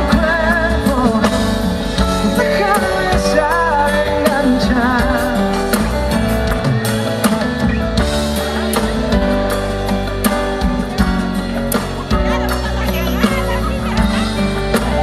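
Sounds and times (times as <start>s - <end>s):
person singing: 0.0s - 6.0s
drum kit beat: 0.0s - 15.0s
guitar: 0.0s - 15.0s
live band playing: 0.0s - 15.0s.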